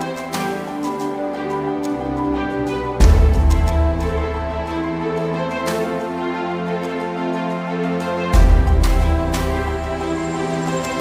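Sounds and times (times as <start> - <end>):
background music with held chords: 0.0 - 11.0.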